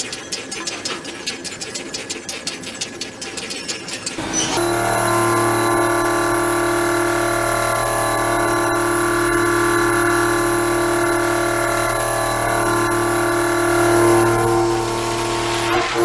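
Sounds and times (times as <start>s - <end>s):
machine tool whine: 3.8s - 16.0s.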